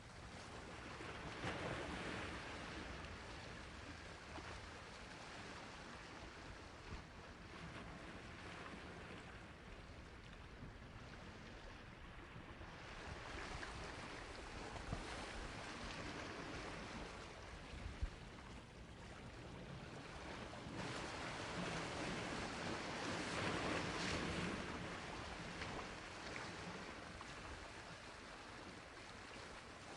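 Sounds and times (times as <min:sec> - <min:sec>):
sea waves washing onto shore: 0:19.9 - 0:29.9.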